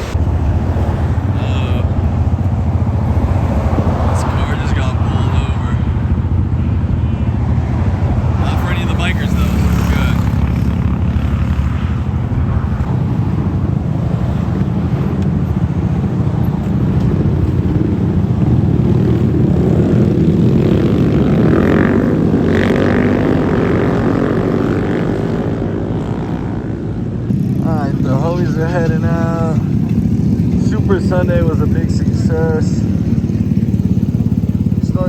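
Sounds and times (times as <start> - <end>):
motorcycle and scooter engines: 0.0 - 35.0.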